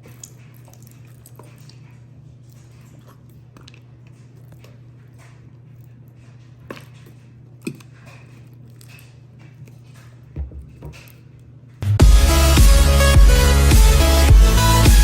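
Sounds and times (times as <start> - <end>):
dull thumps: 10.3 - 11.1.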